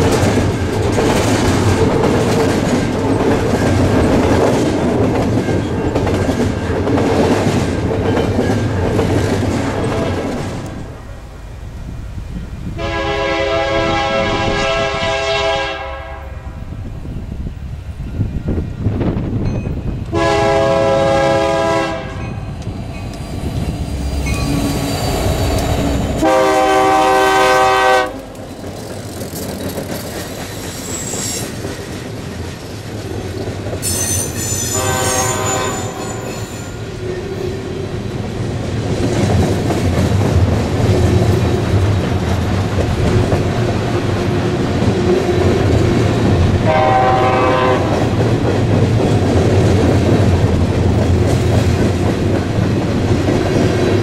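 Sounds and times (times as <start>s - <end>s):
locomotive horn blasts: 12.8s - 16.6s, 20.1s - 22.4s, 26.1s - 28.3s, 34.7s - 36.4s, 46.6s - 48.1s.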